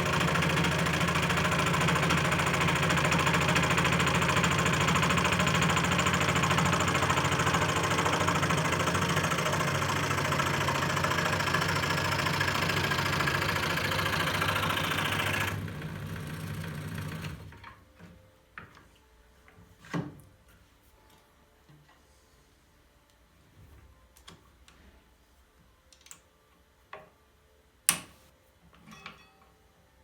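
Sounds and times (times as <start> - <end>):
scroll saw running: 0.0 - 17.5.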